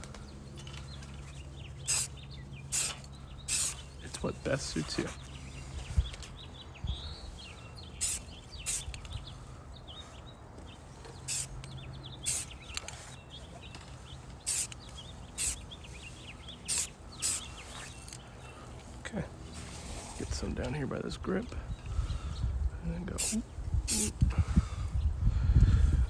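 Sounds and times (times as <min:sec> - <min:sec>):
small birds chirping: 0:00.0 - 0:26.0
short hissing bursts: 0:01.8 - 0:04.0, 0:07.3 - 0:09.4, 0:11.3 - 0:11.6, 0:12.2 - 0:12.8, 0:14.4 - 0:18.0, 0:23.2 - 0:24.2.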